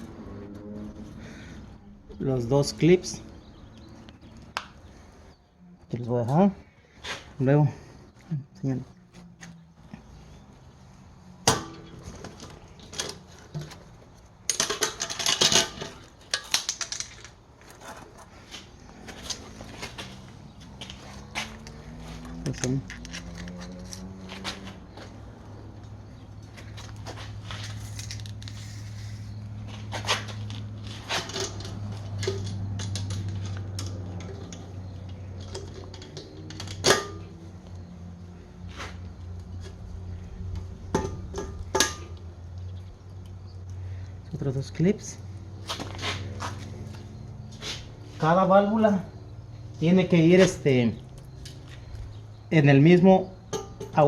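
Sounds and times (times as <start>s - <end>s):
small metal parts clinking: 14.5s - 17.4s.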